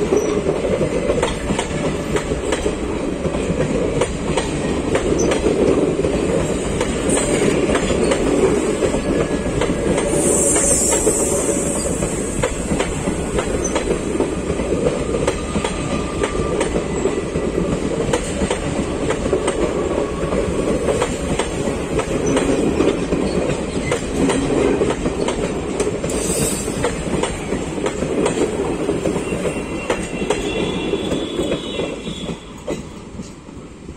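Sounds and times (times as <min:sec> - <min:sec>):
train coaches rumbling past: 0:00.0 - 0:33.9.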